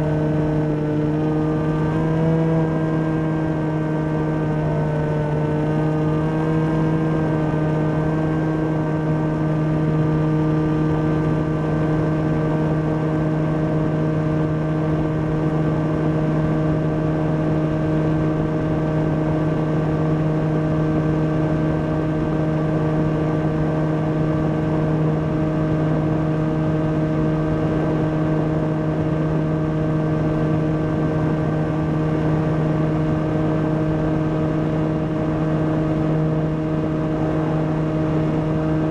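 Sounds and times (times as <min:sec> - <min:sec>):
electric motor and propeller hum: 0:00.0 - 0:38.9.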